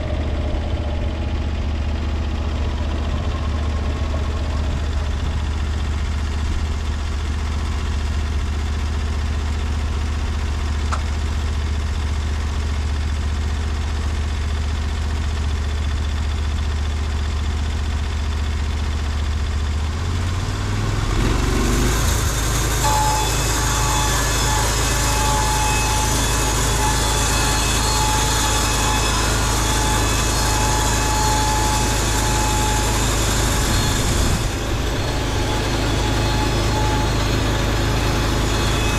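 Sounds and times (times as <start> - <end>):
band saw whine: 0.0 - 38.9
sawmill engine droning: 0.0 - 38.9
band saw hissing: 21.2 - 38.9.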